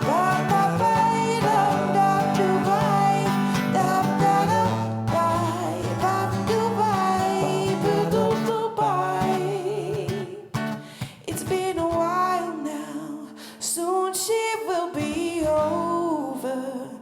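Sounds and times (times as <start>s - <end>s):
acoustic guitar playing: 0.0s - 12.4s
person singing wordless vocal line: 0.0s - 17.0s.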